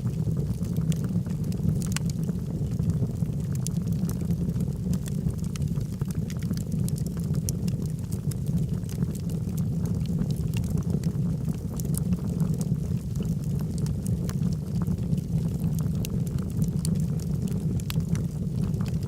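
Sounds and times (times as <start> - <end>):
fire crackles and pops: 0.0 - 19.0
fire rumbling: 0.0 - 19.0.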